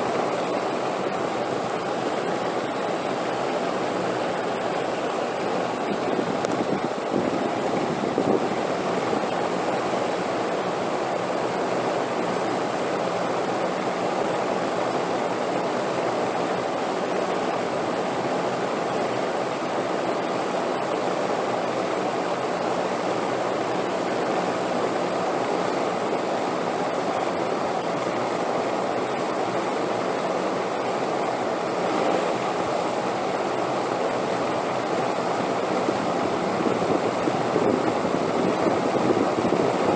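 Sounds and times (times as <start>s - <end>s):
wind blowing: 0.0s - 10.3s, 34.6s - 39.9s.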